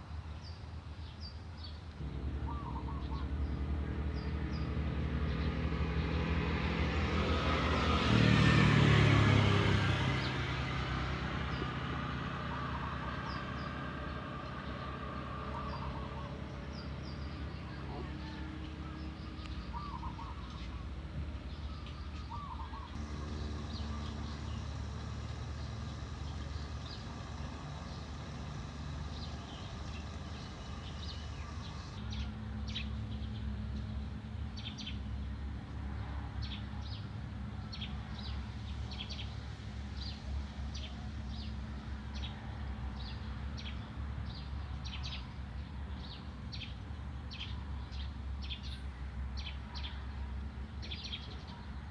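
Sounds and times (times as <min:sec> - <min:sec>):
small birds chirping: 0:00.5 - 0:06.4, 0:09.5 - 0:33.4.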